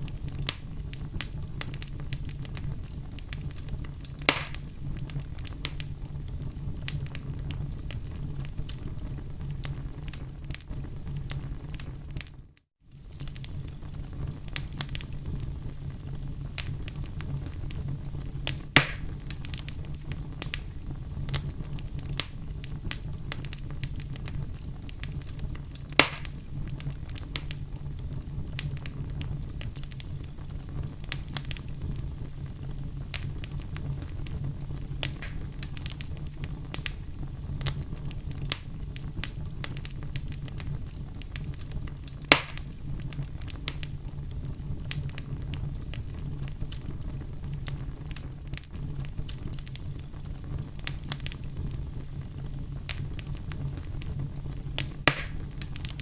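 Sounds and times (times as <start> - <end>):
wood fire crackling: 0.0 - 56.0
sharp loud fire pops: 4.2 - 4.7, 18.8 - 19.1, 25.9 - 26.4, 35.1 - 35.6, 42.3 - 42.8, 55.0 - 56.0.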